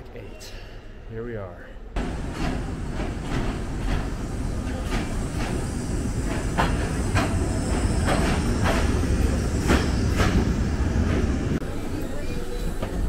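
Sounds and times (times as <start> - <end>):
wheels clacking over rail joints: 2.0 - 11.2
train rumbling: 2.0 - 13.0.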